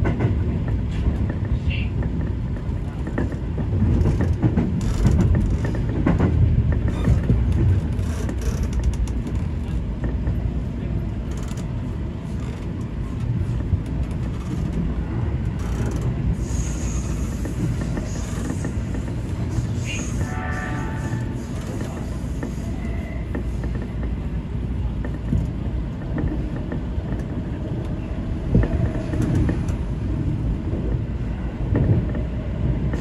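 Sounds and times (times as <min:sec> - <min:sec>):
wheels clicking over rail joints: 0:00.0 - 0:10.5, 0:11.1 - 0:20.3
train wheels rumbling on rail: 0:00.0 - 0:33.0.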